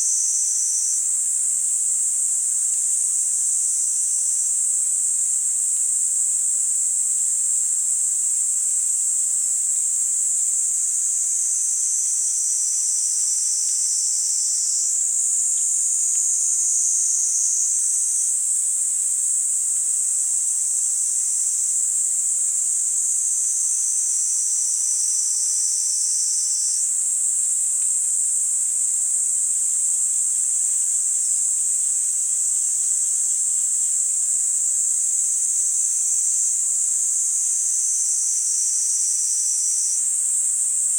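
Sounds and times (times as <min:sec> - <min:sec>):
cicada buzzing trill: 0:11.2 - 0:19.4, 0:23.4 - 0:26.8, 0:36.8 - 0:40.1.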